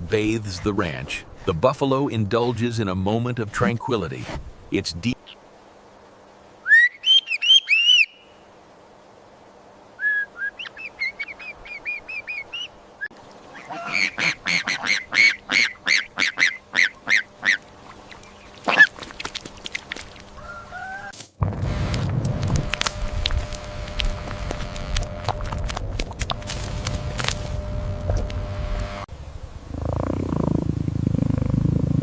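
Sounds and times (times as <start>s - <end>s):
bird honking calls: 13.5s - 19.0s.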